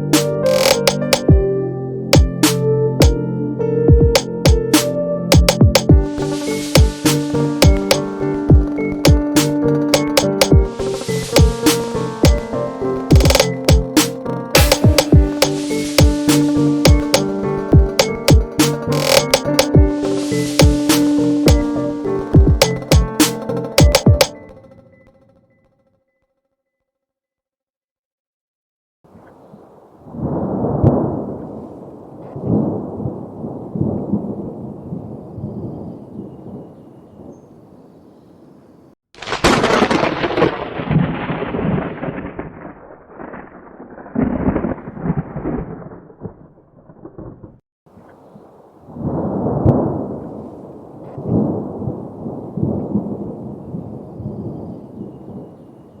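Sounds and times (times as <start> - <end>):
sharp thunder crack: 4.0 - 12.6, 39.2 - 47.6
thunder rumbling: 5.9 - 18.9, 29.7 - 37.3, 39.2 - 47.6, 48.8 - 55.5.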